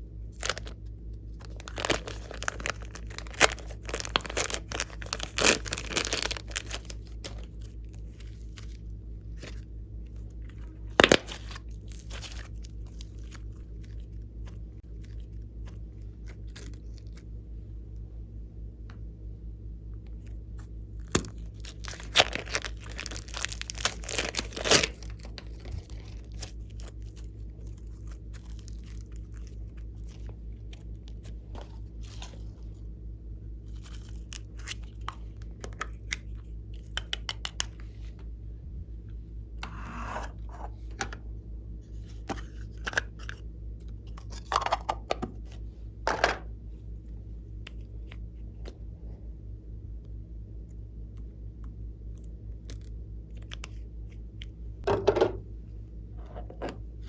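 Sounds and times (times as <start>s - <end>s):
steady low hum: 0.0s - 57.0s
slime squished by hand crackling: 1.5s - 8.8s, 21.0s - 32.6s.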